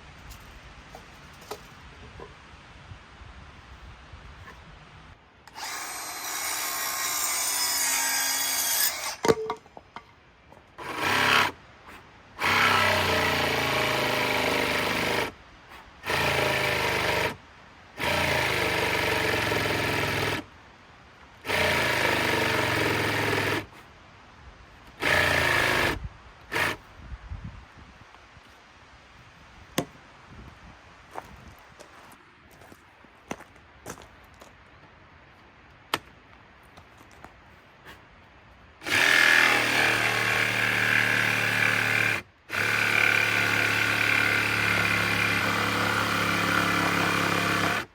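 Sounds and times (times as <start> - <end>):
power drill driving screws into wood: 5.5 - 9.5, 10.8 - 11.6, 12.4 - 15.4, 16.0 - 17.4, 18.0 - 20.5, 21.4 - 23.7, 25.0 - 26.8, 38.8 - 47.9.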